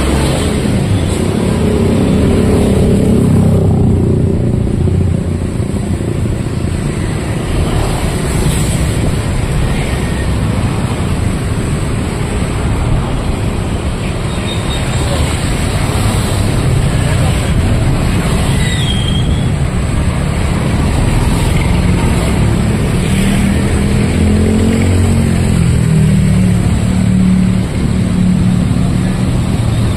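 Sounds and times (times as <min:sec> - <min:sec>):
motorcycles and cars passing: 0:00.0 - 0:29.9
loud vehicle passing: 0:19.5 - 0:29.9.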